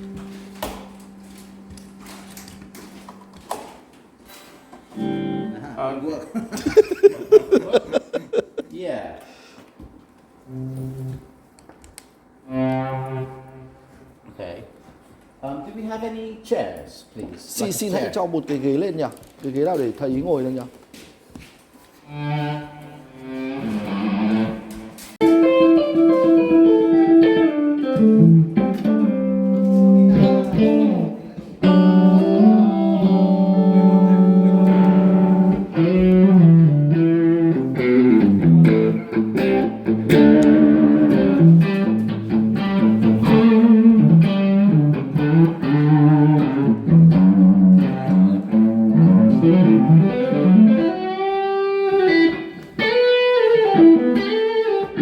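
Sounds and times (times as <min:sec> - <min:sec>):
electric guitar lead: 0:00.0 - 0:03.6, 0:04.9 - 0:05.8, 0:12.4 - 0:14.0, 0:22.1 - 0:55.0.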